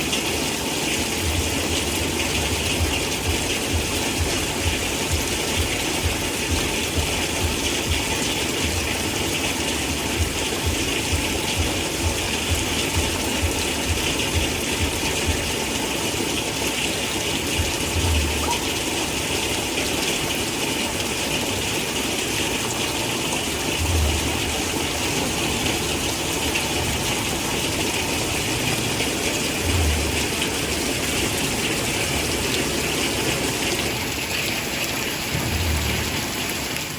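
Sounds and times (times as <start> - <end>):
heavy rain hissing: 0.0 - 36.9
low thuds: 35.3 - 36.5.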